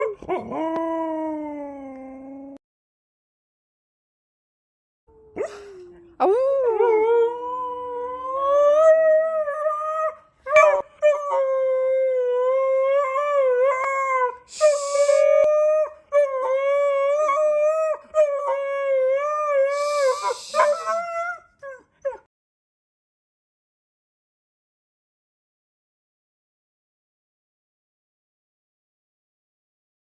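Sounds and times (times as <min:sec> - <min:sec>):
dog howling: 0:00.0 - 0:02.6, 0:06.2 - 0:22.3.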